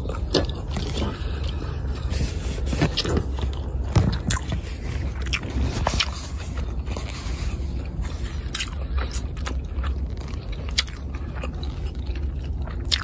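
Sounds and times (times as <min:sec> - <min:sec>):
hand rubbing on phone: 0:02.0 - 0:03.0
wet chewing and lip smacks: 0:02.9 - 0:06.8, 0:07.8 - 0:13.0.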